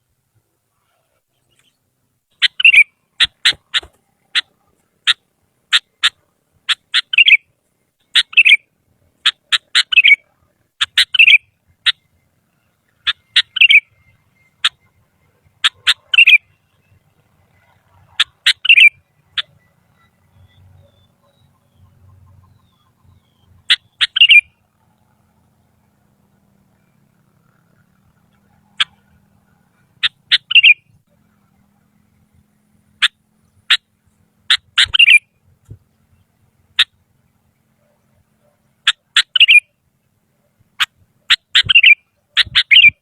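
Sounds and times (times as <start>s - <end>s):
bulbul singing chirps and whistles: 1.4s - 4.5s, 5.8s - 24.6s, 29.8s - 31.1s, 33.0s - 35.4s, 36.0s - 39.8s, 40.8s - 43.0s.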